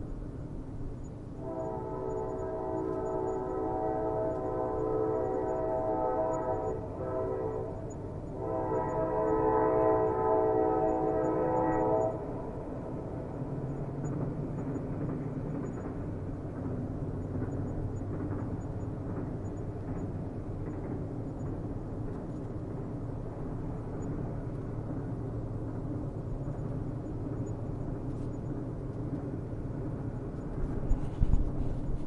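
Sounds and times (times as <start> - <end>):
passing train rumble: 0.0 - 32.0
train horn blasts: 1.4 - 12.4.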